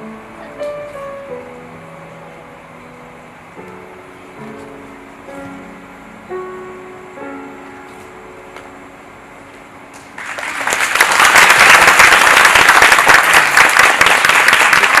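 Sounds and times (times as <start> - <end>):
audience applause: 10.2 - 15.0.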